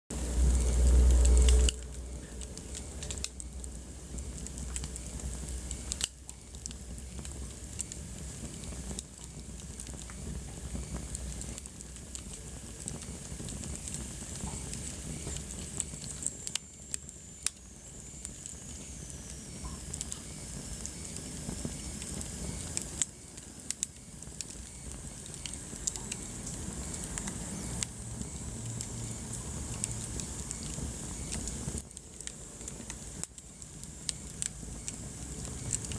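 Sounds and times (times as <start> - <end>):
low steady rumble: 0.1 - 17.8
wood fire crackling and popping: 0.1 - 35.9.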